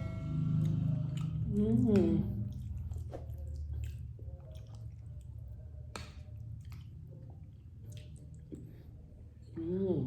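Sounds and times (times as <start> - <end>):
wet chewing and mouth sounds: 0.6 - 9.6
small clicks and smacks: 5.9 - 6.9.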